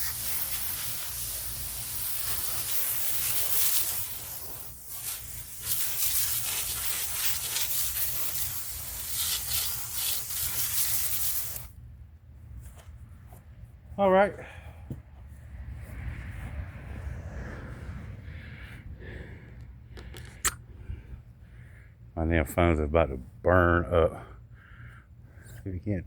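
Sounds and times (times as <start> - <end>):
brush scrubbing concrete: 0.0 - 11.7.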